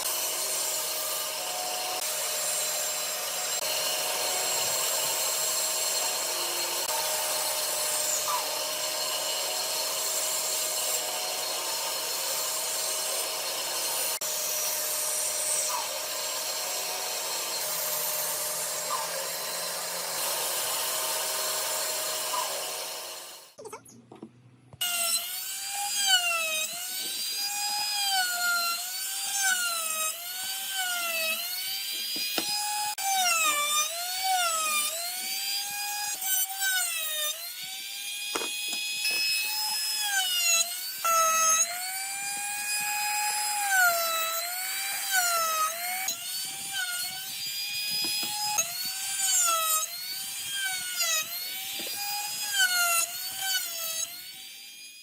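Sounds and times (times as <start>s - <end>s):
power tool whining in wood: 0.0s - 23.6s, 24.8s - 55.0s.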